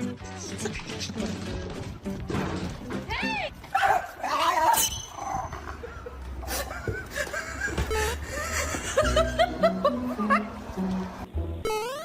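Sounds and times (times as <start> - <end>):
people laughing: 5.5 - 10.8.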